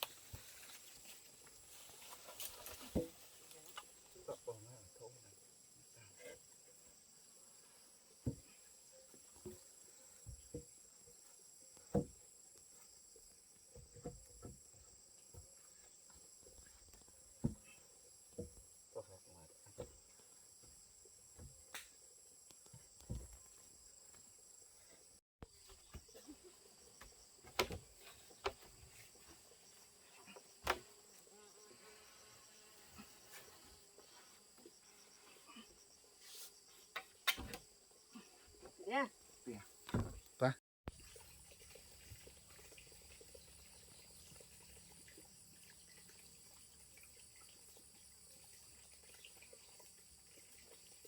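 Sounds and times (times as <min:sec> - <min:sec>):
insects trilling: 0:00.5 - 0:40.5.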